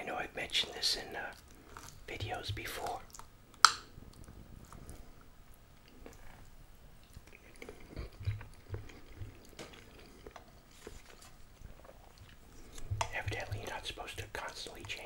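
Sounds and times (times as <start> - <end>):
chewing food: 1.2 - 15.0
wet mouth sounds: 5.8 - 15.0.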